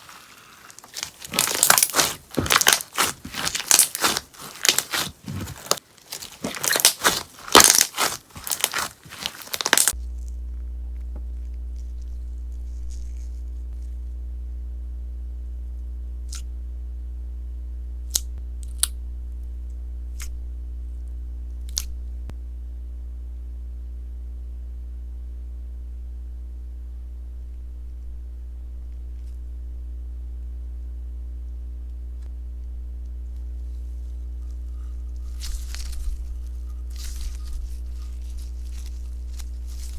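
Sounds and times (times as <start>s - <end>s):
steady low hum: 0.0s - 39.9s
slime popping: 0.1s - 10.0s.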